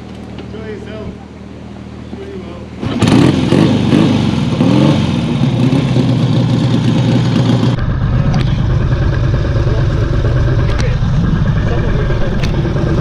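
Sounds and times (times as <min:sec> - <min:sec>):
motorcycle engine revving and idling: 0:02.8 - 0:13.0.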